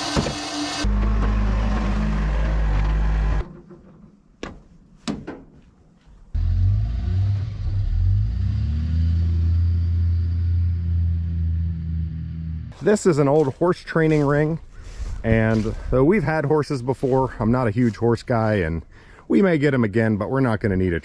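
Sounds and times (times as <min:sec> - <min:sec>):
engine running and revving: 0:00.0 - 0:03.5, 0:06.4 - 0:12.8.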